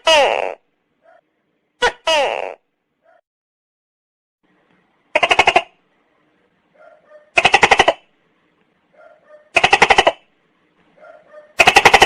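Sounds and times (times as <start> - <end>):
gecko calling: 5.1 - 5.8, 6.8 - 8.1, 9.0 - 10.3, 11.0 - 12.0.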